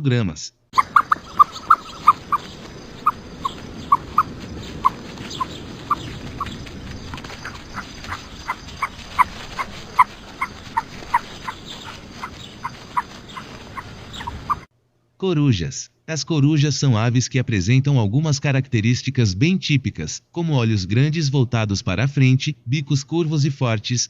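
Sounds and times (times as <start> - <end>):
ostrich chirping: 0.8 - 14.7
steady background hiss: 0.8 - 18.5.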